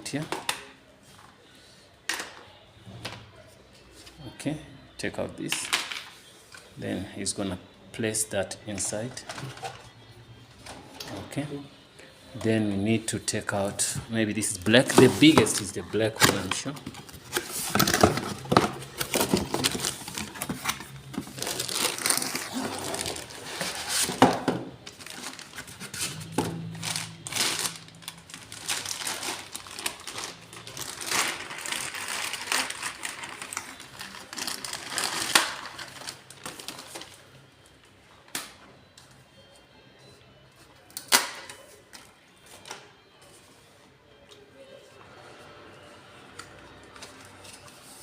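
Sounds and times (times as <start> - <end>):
plastic packaging crinkling: 14.7 - 37.6.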